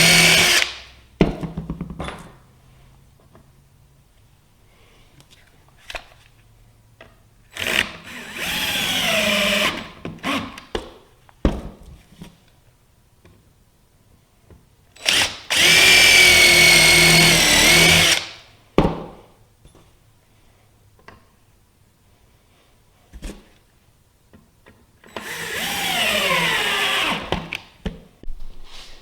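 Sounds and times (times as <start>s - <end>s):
power drill running: 0.0s - 0.7s, 7.6s - 10.4s, 15.0s - 18.3s, 25.1s - 27.3s.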